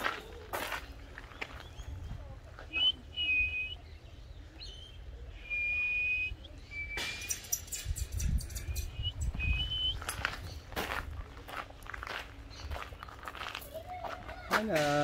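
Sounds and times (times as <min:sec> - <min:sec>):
bird whistling: 0:02.7 - 0:10.2.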